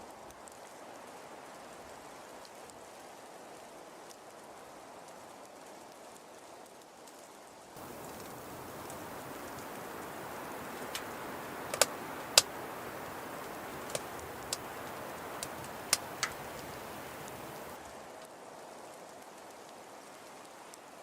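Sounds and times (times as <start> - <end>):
rain-like hiss: 0.0 - 21.0
sharp clicks: 7.8 - 17.8.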